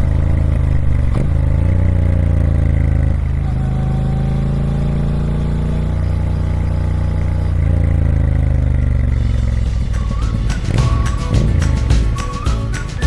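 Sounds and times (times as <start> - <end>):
music: 9.2 - 13.0.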